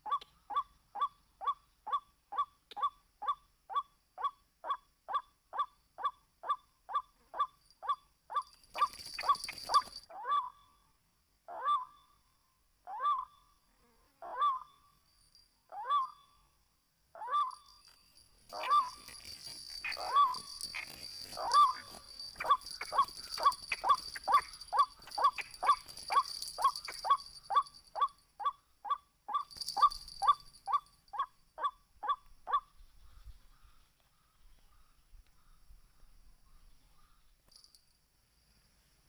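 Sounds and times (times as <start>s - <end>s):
waterhen calling: 18.5s - 28.5s.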